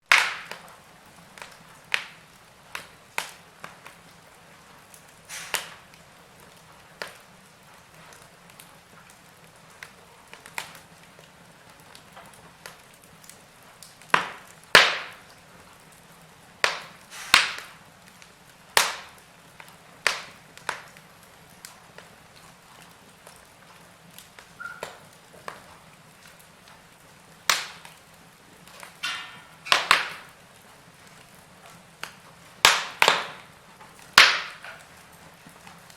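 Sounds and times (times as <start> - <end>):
wood fire crackling and popping: 0.0 - 35.9
faint fire hiss: 0.1 - 35.9
short hiss: 5.3 - 5.8, 17.1 - 17.6.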